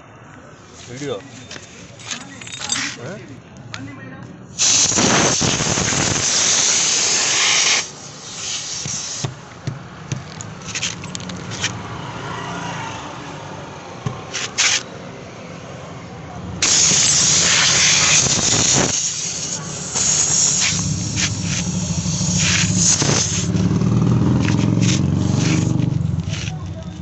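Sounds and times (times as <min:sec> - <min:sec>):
pressurised air hissing: 0:04.5 - 0:09.4, 0:16.6 - 0:25.8.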